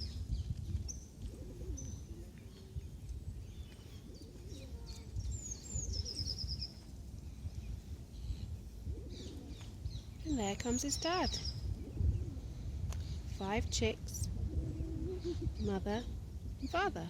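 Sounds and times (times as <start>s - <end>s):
songbird singing a trill: 1.8s - 12.2s.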